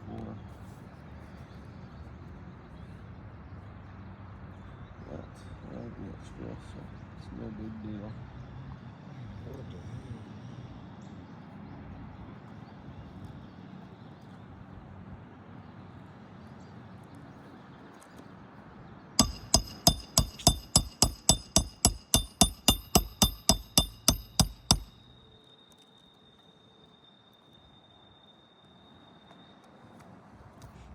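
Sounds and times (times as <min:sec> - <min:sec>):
hammer striking nail: 0:19.2 - 0:25.1.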